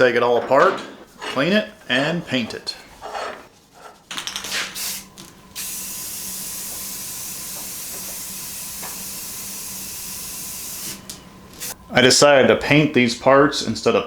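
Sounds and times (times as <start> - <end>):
spray paint hissing: 4.5 - 11.8.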